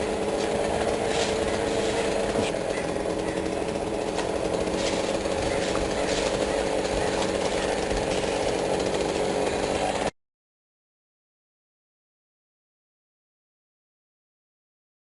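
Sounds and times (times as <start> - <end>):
motor drone: 0.0 - 10.1.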